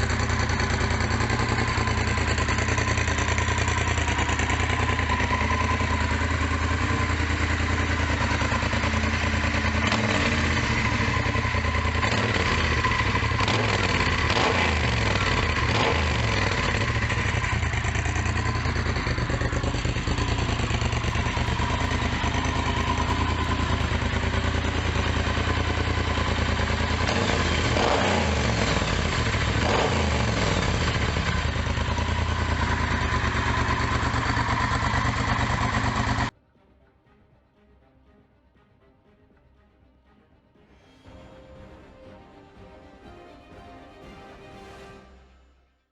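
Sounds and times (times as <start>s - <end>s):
motorcycle engine idling: 0.0s - 36.3s.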